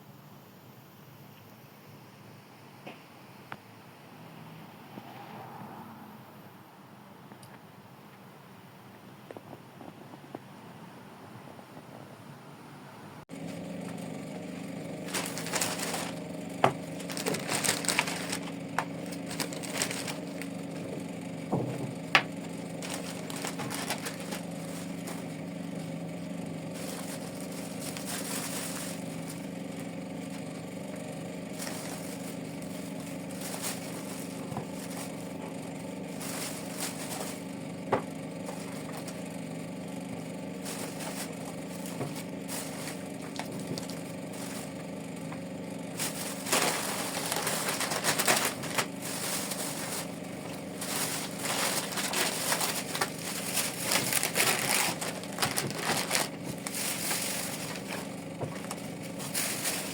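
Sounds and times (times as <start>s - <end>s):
steady low hum: 0.0s - 59.9s
objects rustling and scraping: 13.3s - 39.3s, 40.6s - 59.9s.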